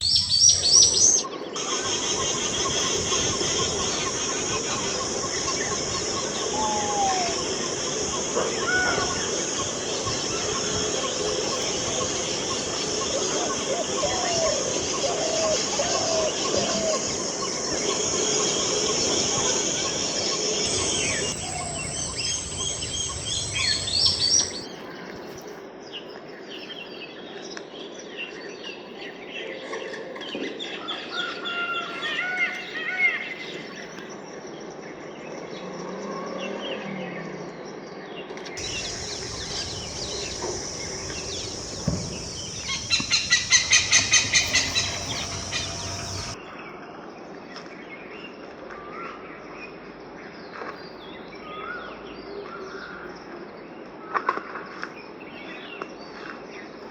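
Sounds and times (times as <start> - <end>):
birds chirping: 0.0 - 24.7, 38.6 - 46.4
outdoor background noise: 0.0 - 56.9
fast chattering bird notes: 15.6 - 24.6, 38.6 - 46.4.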